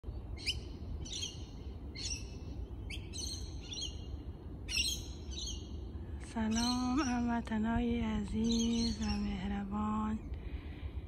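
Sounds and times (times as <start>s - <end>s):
low background hum: 0.0s - 11.0s
bird calling: 0.3s - 5.8s, 8.4s - 9.6s.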